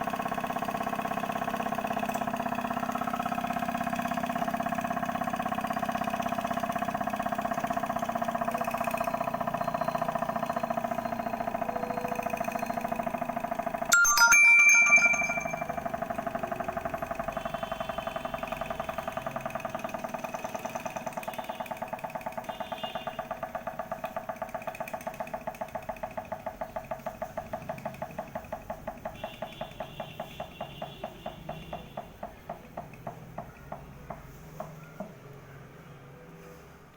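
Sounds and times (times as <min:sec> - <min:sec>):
model engine clicking: 0:00.0 - 0:13.8, 0:15.8 - 0:34.8.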